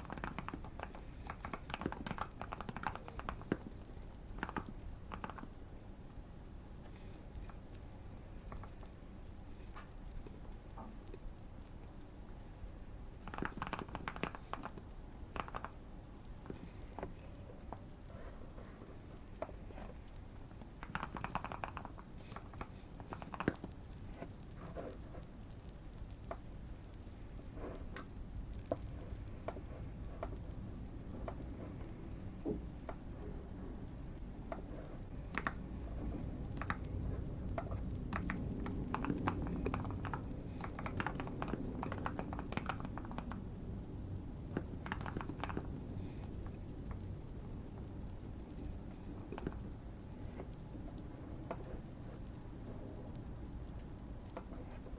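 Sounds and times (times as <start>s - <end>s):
mechanical keyboard typing: 0.0s - 5.8s, 13.2s - 18.2s, 19.2s - 33.2s, 33.9s - 51.6s
fireplace crackling: 0.0s - 54.9s.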